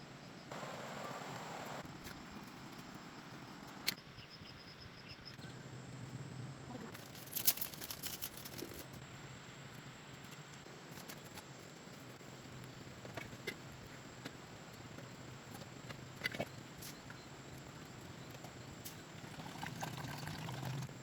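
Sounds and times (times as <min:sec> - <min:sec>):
handling noises: 0:06.9 - 0:09.0.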